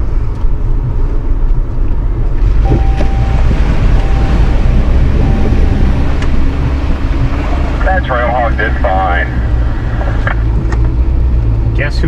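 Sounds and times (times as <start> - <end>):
engine running: 0.0 - 12.0
wind rumble on microphone: 0.0 - 12.0
water splashing and surging: 2.3 - 11.3
thin whine: 2.6 - 11.6.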